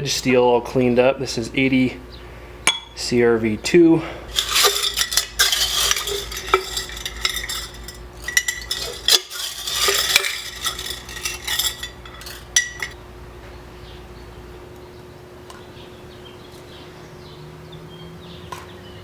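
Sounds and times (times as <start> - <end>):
short metallic rings: 4.3 - 13.0
steel pieces clinking and rattling: 4.3 - 13.0.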